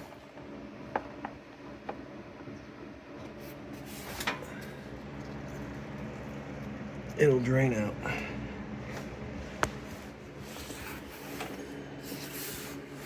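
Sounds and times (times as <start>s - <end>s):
oil draining: 3.2s - 7.2s.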